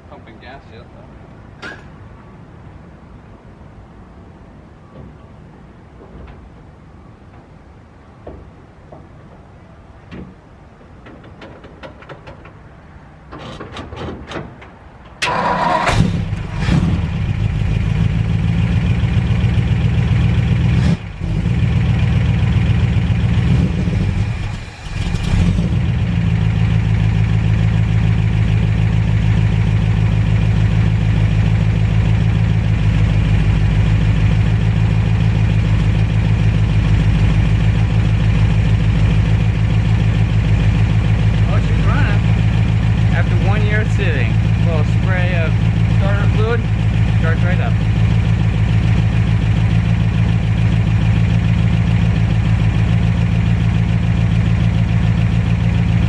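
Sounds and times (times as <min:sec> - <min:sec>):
engine starting and running: 0:13.2 - 0:56.0
engine cranking: 0:15.1 - 0:18.1, 0:20.8 - 0:52.4.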